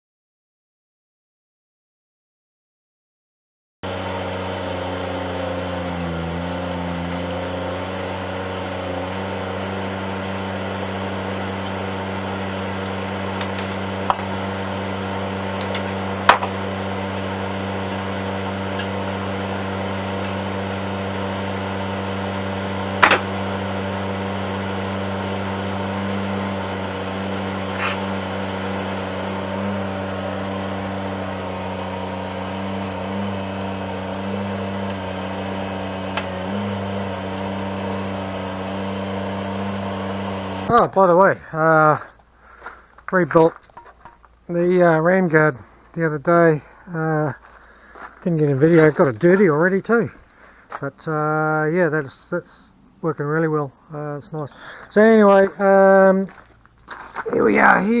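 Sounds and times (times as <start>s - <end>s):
excavator engine running: 3.8s - 58.0s
sharp knocks: 23.0s - 23.4s.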